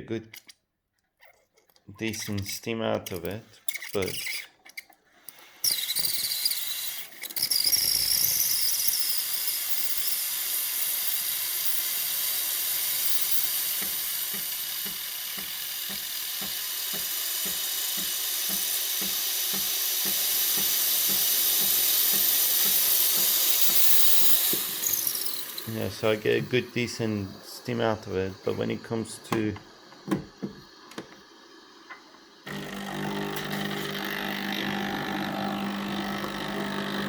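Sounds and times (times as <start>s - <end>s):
steam wand hissing: 5.3s - 37.0s.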